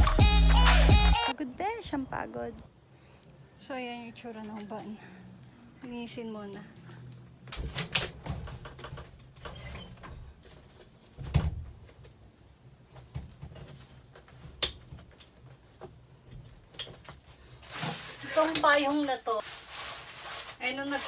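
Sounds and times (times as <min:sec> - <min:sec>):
rustling: 0:06.5 - 0:21.0.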